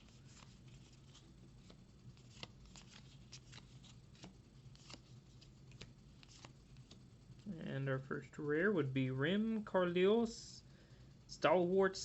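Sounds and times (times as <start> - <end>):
cards flipping and sliding: 0.0 - 7.0
low steady hum: 0.0 - 12.0.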